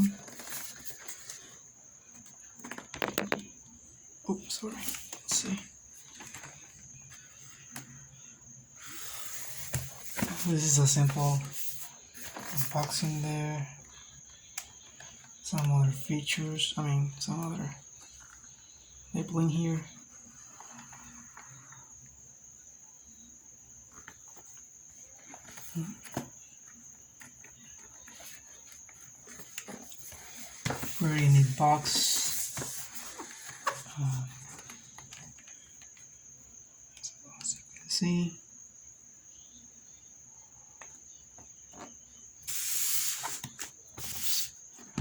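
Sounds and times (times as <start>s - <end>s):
cardboard scraping rustle: 8.8s - 13.2s, 27.3s - 35.0s, 42.5s - 45.0s.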